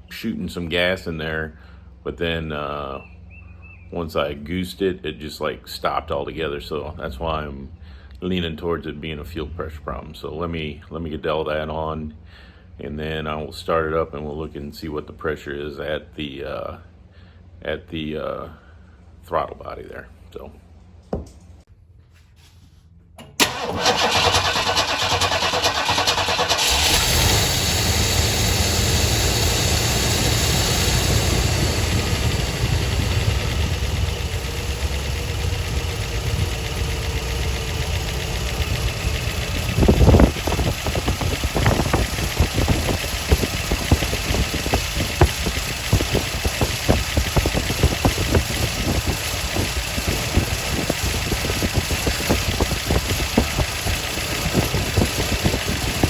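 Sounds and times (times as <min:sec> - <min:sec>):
car engine idling: 0:23.2 - 0:56.0
starter motor cranking: 0:23.2 - 0:56.0.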